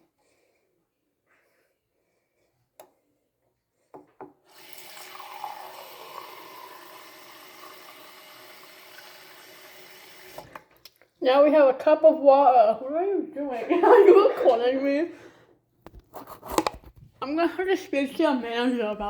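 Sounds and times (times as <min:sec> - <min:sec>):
tap water running into cup: 0:04.5 - 0:10.6.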